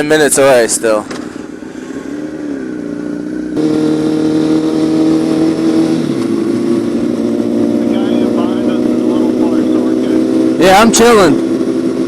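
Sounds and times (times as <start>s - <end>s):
motorcycle engine revving: 1.0s - 12.0s.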